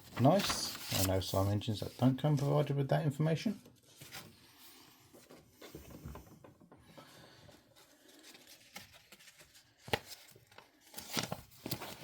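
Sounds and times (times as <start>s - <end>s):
paper rustling and clicking: 0.0s - 1.5s, 7.8s - 12.0s.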